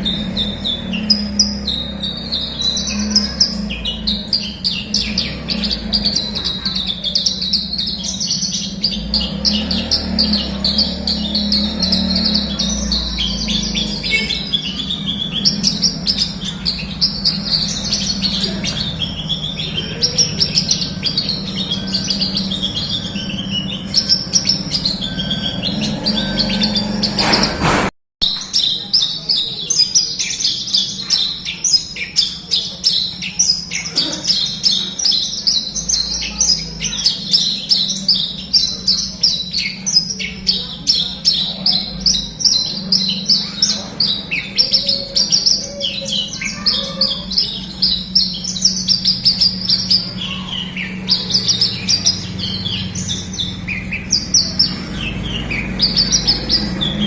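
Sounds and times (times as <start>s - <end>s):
steady low hum: 0.0s - 27.8s
bird chirping and trilling: 0.0s - 57.0s.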